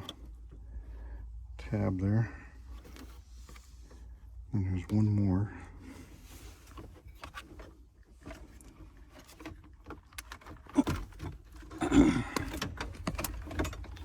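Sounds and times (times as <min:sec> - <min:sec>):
clicks and knocks on dashboard: 0:09.2 - 0:14.0.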